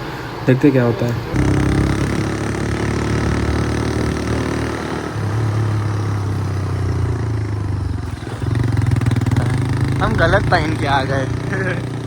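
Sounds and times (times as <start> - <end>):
motorcycle engine running: 1.3 - 12.0.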